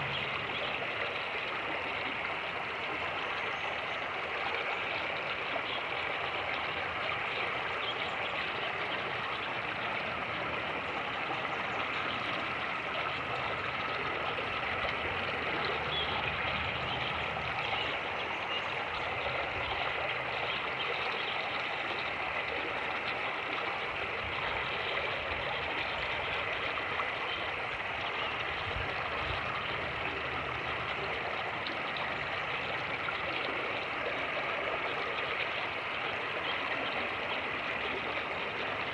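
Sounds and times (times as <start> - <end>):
creek water rushing over rapids: 0.0 - 38.9
wind rumble on microphone: 28.6 - 30.0.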